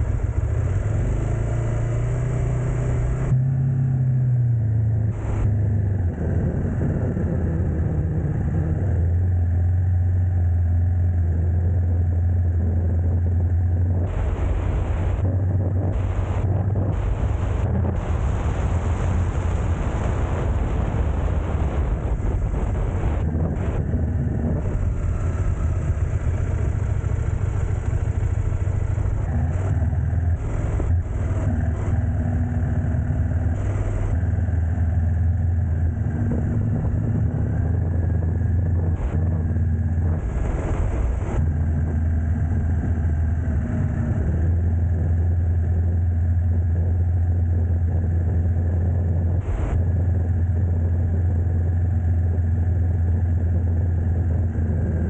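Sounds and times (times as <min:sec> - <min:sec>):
road noise: 0:00.0 - 0:55.0
vehicle engine humming: 0:00.0 - 0:55.0.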